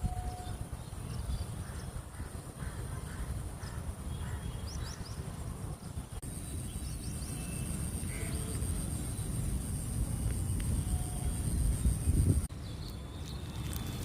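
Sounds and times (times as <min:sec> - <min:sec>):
wind rumble on microphone: 0:00.0 - 0:14.0
high-pitched insect drone: 0:06.2 - 0:12.5.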